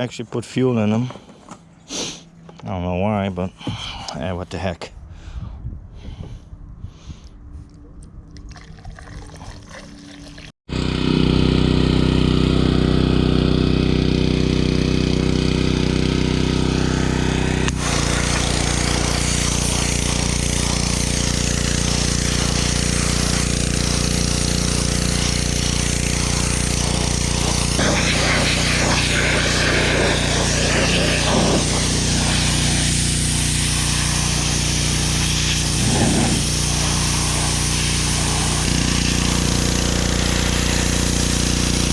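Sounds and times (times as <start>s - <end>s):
pressure washer engine running: 10.7s - 41.9s
hissing water spray: 16.9s - 41.9s.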